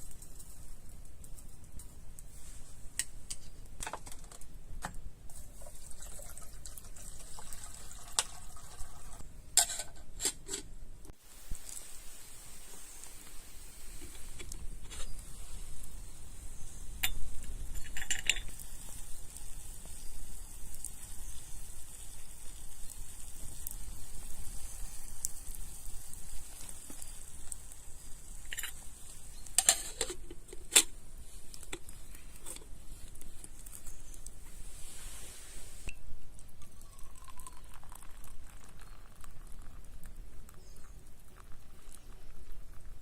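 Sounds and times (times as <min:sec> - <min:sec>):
sizzling hiss: 0:11.1 - 0:36.0
utensils clinking against a pan: 0:29.6 - 0:30.2.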